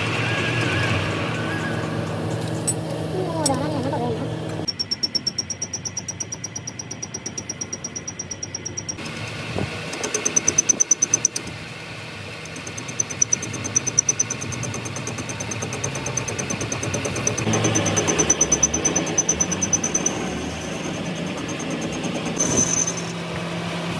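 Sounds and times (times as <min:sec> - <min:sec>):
engine running: 0:00.0 - 0:23.9
high-pitched pulsing: 0:12.6 - 0:23.9.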